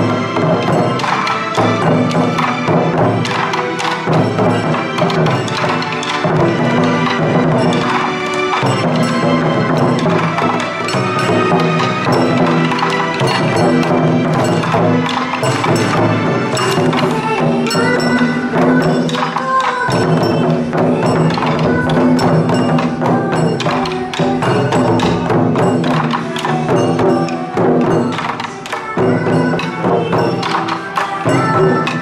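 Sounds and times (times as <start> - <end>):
clicky percussion beat: 0.0 - 32.0
pop song with singing and band: 16.7 - 25.3, 26.2 - 32.0.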